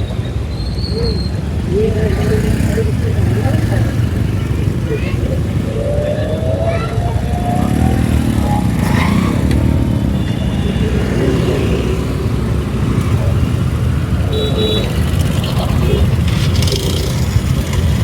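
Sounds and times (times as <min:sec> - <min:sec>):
road noise: 0:00.0 - 0:18.0
vehicles passing: 0:00.0 - 0:18.0
wind rush: 0:04.4 - 0:14.3.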